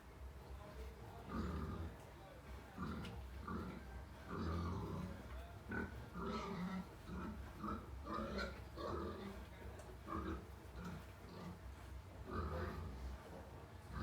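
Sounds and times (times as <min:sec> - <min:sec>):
pigs grunting: 0:01.1 - 0:14.0.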